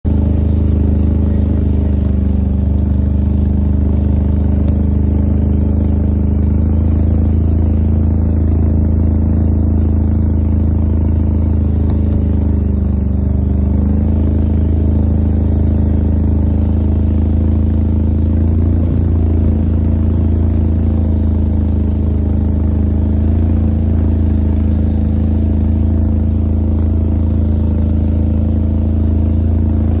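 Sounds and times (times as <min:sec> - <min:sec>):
atv engine pulling uphill: 0:00.0 - 0:30.0.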